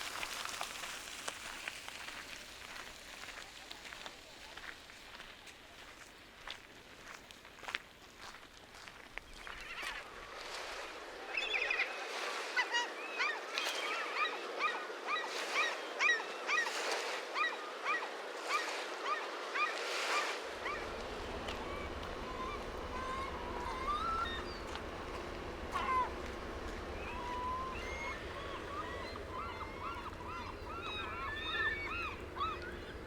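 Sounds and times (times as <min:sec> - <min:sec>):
footsteps on trail: 0:00.0 - 0:11.0, 0:20.8 - 0:31.2.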